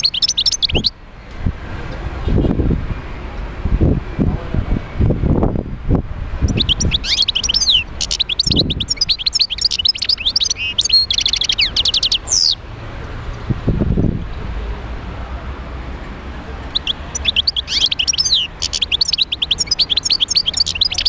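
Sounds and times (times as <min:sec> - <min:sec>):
goldfinch twittering song: 0:00.0 - 0:00.9, 0:06.5 - 0:12.6, 0:16.7 - 0:21.0.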